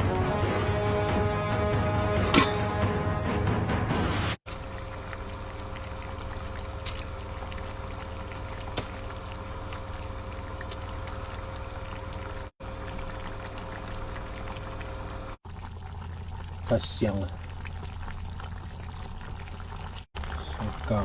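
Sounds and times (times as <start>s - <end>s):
stew bubbling in a pot: 4.4s - 21.0s
faint steady hum: 4.5s - 21.0s.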